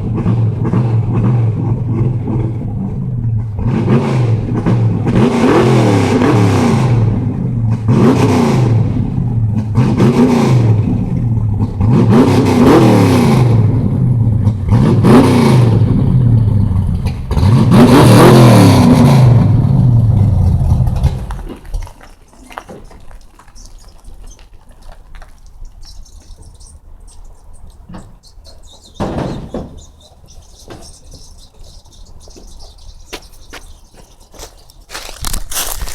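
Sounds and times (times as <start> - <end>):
car engine revving: 0.0 - 21.5, 25.9 - 35.9.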